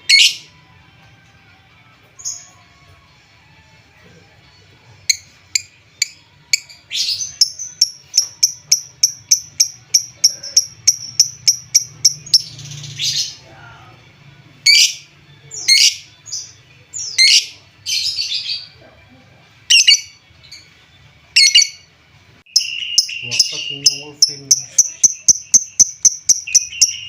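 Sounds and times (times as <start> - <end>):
lovebird chirping: 5.1 - 13.4, 19.7 - 20.7, 21.4 - 21.9, 22.5 - 27.0.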